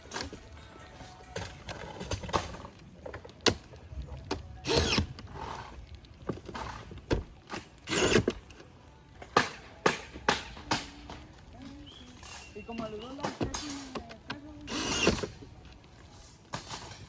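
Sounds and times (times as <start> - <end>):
screw gun driving into metal: 4.6 - 5.2, 7.8 - 8.4, 14.7 - 15.4.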